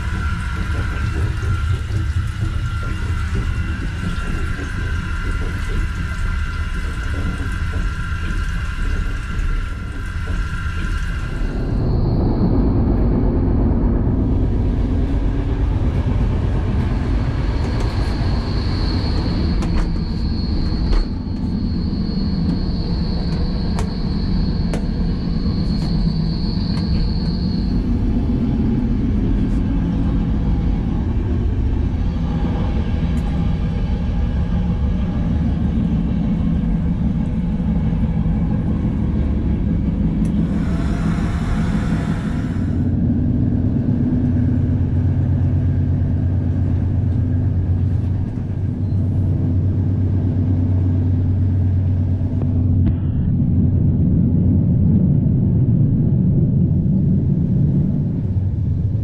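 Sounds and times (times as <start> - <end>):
steady whine: 0.0 - 59.0
train coach rumble: 0.0 - 59.0.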